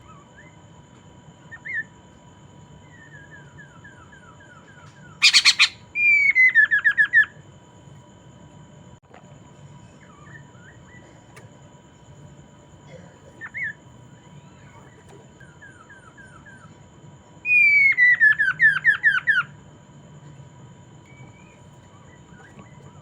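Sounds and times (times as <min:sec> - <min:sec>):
bird singing and whistling: 0:05.2 - 0:06.9.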